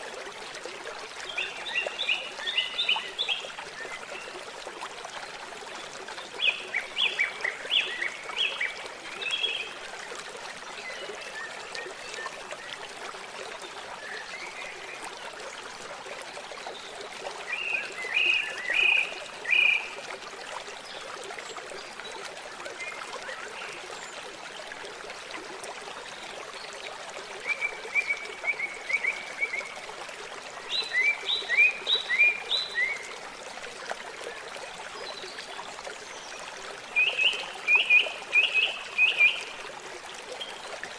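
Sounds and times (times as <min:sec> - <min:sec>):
trickling water: 0:00.0 - 0:40.9.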